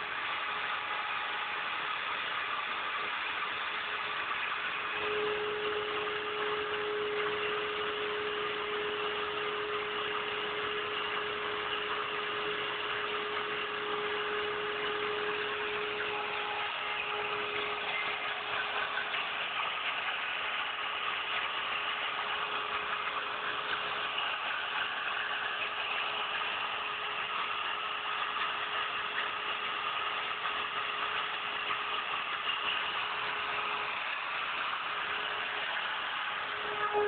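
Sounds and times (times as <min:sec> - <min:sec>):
steady hum tone: 0:00.0 - 0:37.0
router spindle motor cutting: 0:04.9 - 0:19.7, 0:33.0 - 0:37.0.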